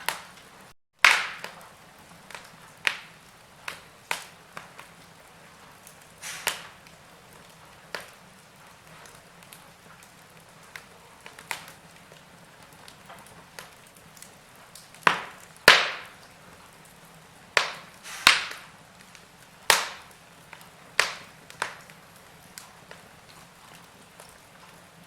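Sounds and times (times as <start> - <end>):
sharp pops of burning wood: 0.0 - 24.8
faint steady hiss: 0.0 - 25.0
wood fire crackling: 0.0 - 25.0.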